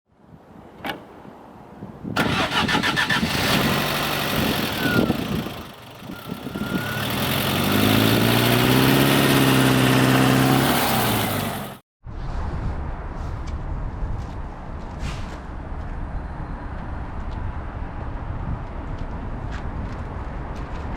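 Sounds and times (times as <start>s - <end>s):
diesel bus engine starting: 2.2s - 11.8s.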